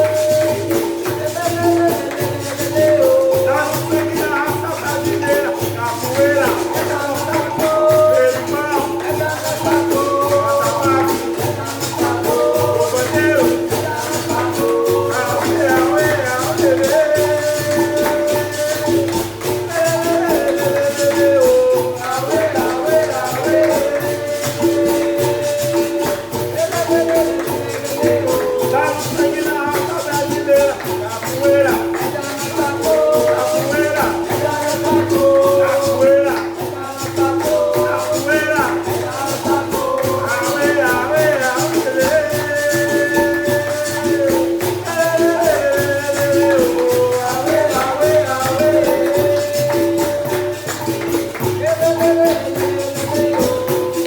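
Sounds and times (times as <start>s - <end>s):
berimbaus playing: 0.0s - 54.0s
person singing: 0.0s - 54.0s
shaken rattling percussion: 0.0s - 54.0s.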